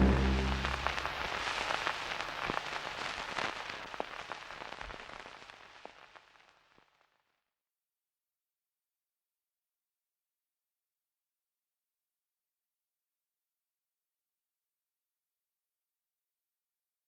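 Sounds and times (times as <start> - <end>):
crackling rain-like noise: 0.0 - 7.4.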